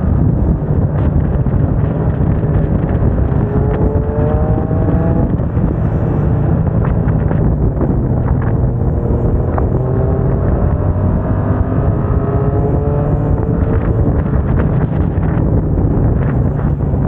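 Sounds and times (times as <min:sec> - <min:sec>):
wind on microphone: 0:00.0 - 0:17.0
motorcycle engine revving: 0:00.7 - 0:17.0.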